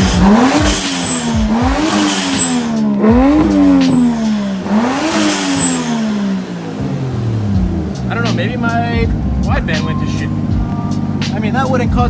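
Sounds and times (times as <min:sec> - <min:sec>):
blow-off valve whistle: 0:00.0 - 0:02.7
engine revving in blips: 0:00.0 - 0:12.0.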